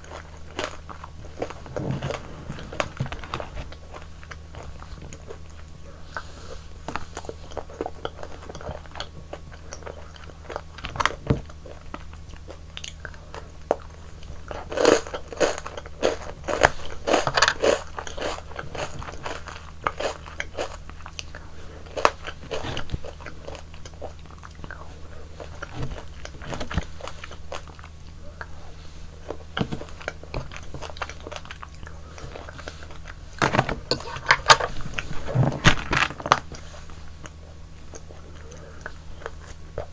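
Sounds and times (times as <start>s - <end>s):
low hum: 0.5s - 6.0s
crunchy bites and chewing: 13.7s - 39.9s.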